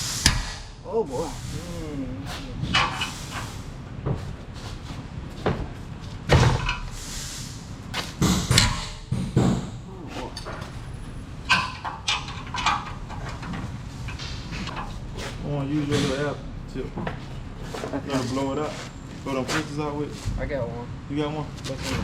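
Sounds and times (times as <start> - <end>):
metal parts knocking and clanking: 6.3 - 6.9, 8.0 - 15.0.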